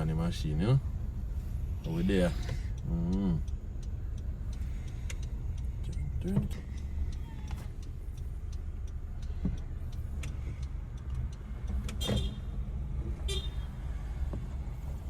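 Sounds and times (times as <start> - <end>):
car engine and road rumble: 0.0 - 15.0
faint clicks: 2.3 - 12.3.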